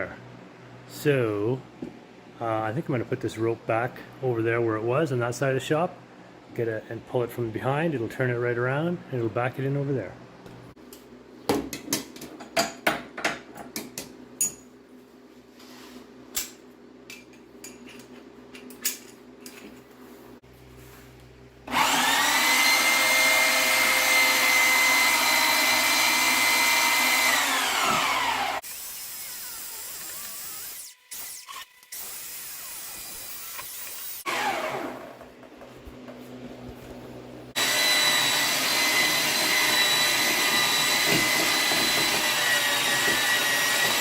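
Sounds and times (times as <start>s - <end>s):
electric winch motor whining: 21.7s - 31.9s, 34.2s - 35.3s, 37.6s - 44.0s.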